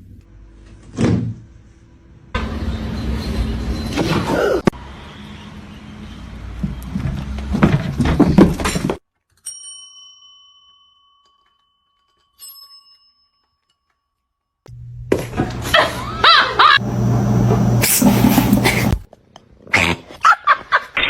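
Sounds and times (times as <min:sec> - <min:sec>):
small bell ringing: 0:09.4 - 0:14.6
noisy unsteady sound: 0:16.0 - 0:19.1.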